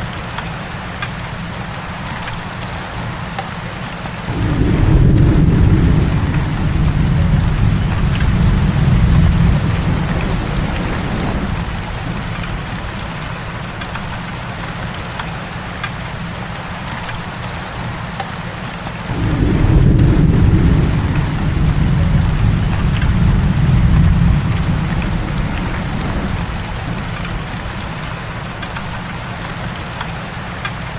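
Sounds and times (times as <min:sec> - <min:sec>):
heavy rain falling: 0:00.0 - 0:30.9
rolling thunder rumbles: 0:04.2 - 0:14.8, 0:19.1 - 0:30.0.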